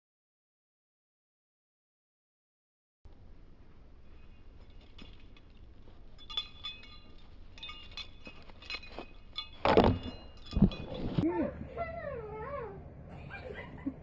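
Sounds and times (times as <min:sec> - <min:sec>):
metallic clinking and jingling: 0:03.9 - 0:12.5.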